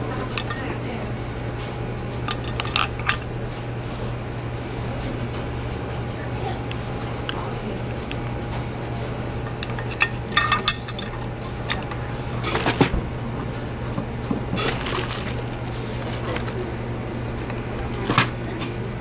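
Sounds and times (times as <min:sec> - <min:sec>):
hard objects clinking: 0:00.0 - 0:03.3, 0:09.0 - 0:12.9, 0:14.5 - 0:18.8
steady low hum: 0:00.0 - 0:19.0.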